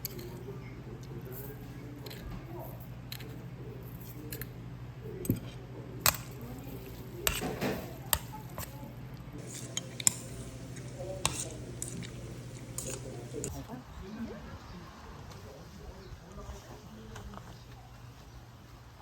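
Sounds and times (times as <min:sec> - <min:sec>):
steady low hum: 0:00.0 - 0:19.0
tableware clinking: 0:09.4 - 0:13.5.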